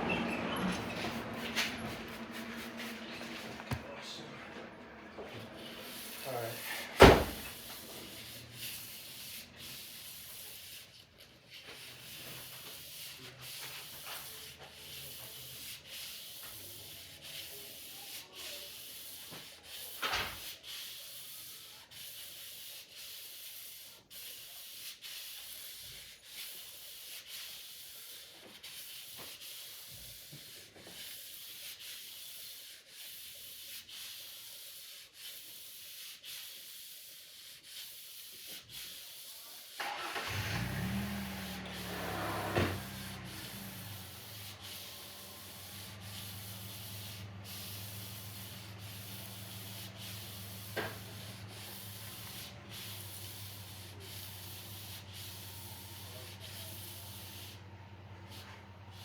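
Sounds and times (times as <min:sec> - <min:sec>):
knock: 0:07.0 - 0:07.4
rubbing scraping hiss: 0:31.0 - 0:59.0.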